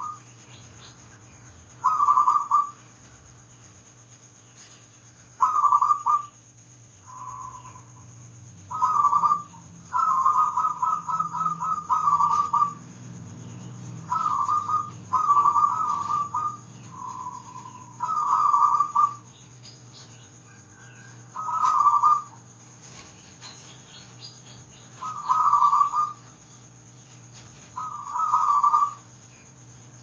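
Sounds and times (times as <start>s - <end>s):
dove cooing: 0.0s - 0.2s, 1.8s - 2.8s, 5.4s - 6.4s, 7.0s - 8.1s, 8.7s - 19.4s, 20.0s - 26.4s, 27.3s - 29.2s
faint low hum: 0.0s - 30.0s.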